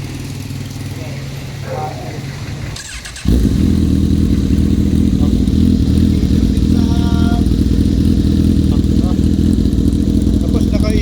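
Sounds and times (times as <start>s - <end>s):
motorcycle engine deep exhaust: 0.0s - 11.0s.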